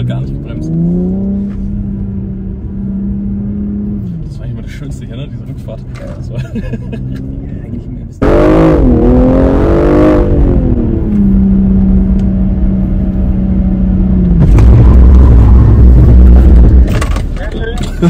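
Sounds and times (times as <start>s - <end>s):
car engine from inside cabin: 0.0s - 18.0s
low rumble: 7.6s - 17.4s.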